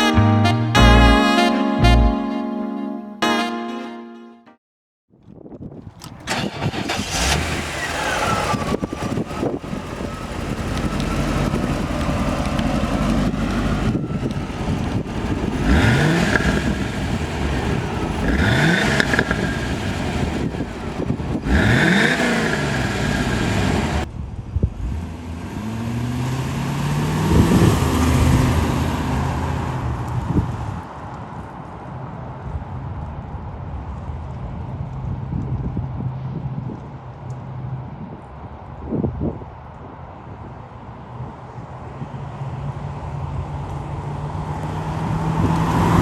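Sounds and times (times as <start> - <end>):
car engine idling and revving: 6.0 - 30.3, 42.8 - 46.0.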